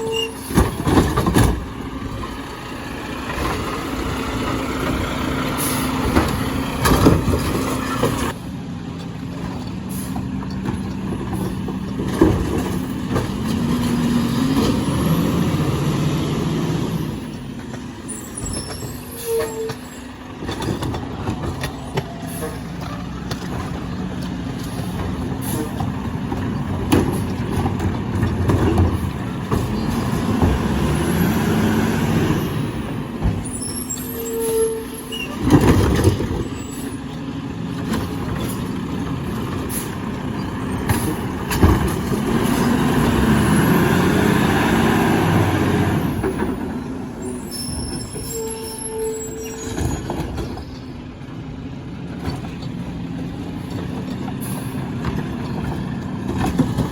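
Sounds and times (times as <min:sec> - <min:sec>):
garbage truck engine running: 0:00.0 - 0:56.9
clanks and knocks: 0:00.5 - 0:02.4, 0:09.3 - 0:14.8, 0:20.4 - 0:30.9, 0:52.1 - 0:56.9.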